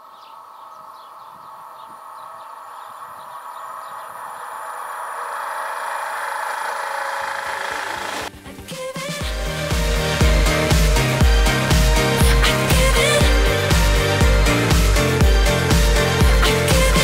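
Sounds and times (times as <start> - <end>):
electric train rushing: 0.0 - 8.3.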